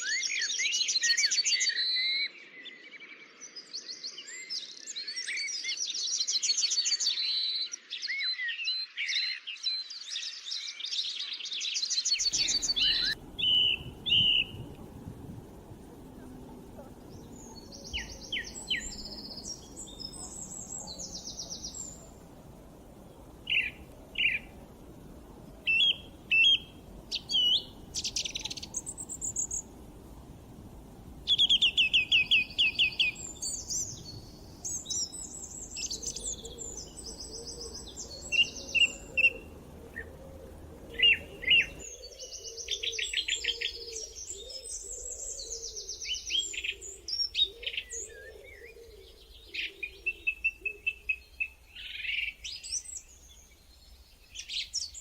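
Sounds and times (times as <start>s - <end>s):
songbirds chirping and singing: 0.0s - 55.0s
low background rumble: 12.2s - 41.9s.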